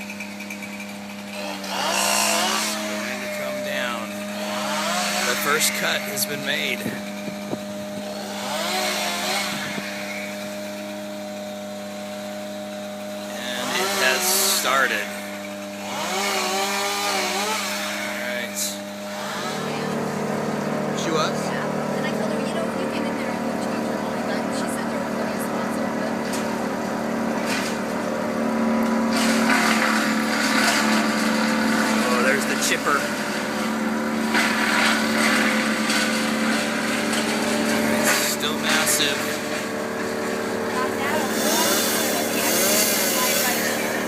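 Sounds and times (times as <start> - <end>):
chainsaw engine droning: 0.0 - 44.0.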